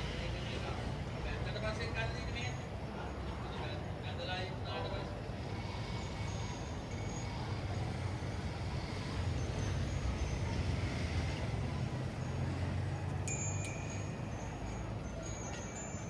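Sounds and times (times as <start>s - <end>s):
vehicle traffic rumble: 0.0s - 16.0s
faint high ringing tones: 5.6s - 16.0s.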